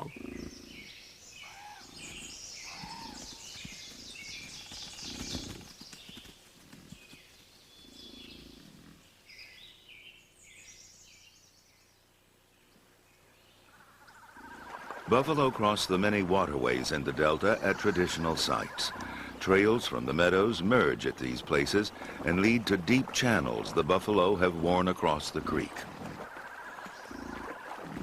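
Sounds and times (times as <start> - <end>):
birds chirping: 0.0 - 28.0
low rumbles: 14.6 - 26.3.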